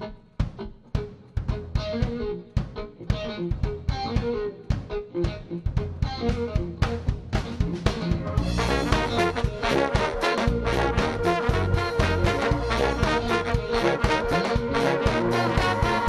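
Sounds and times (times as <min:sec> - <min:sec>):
drums and bass beat: 0:00.0 - 0:16.0
horn section playing: 0:08.3 - 0:16.0.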